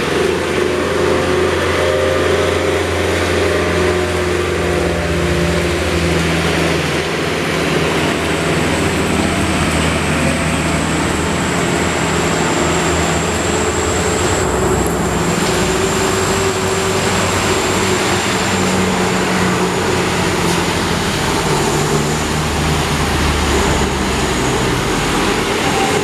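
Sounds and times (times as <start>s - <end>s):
high steady whine: 0.0s - 26.0s
truck diesel engine under load: 0.0s - 26.0s.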